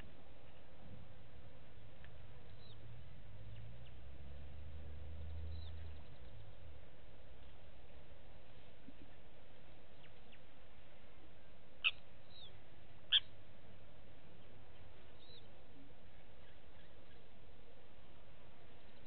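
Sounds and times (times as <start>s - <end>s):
steady background hiss: 0.0s - 19.0s
faint bird chirps: 2.4s - 4.0s, 5.1s - 6.7s, 8.4s - 10.6s, 11.8s - 13.4s, 14.3s - 17.4s
short sharp bird calls: 11.8s - 12.5s, 13.1s - 13.3s.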